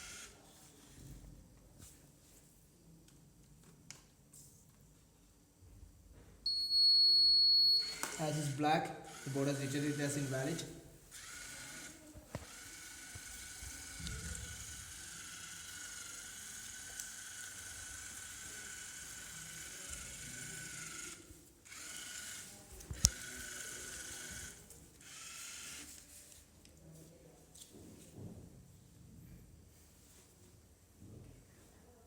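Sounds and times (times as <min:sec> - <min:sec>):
robot motors whining: 0:11.1 - 0:25.9.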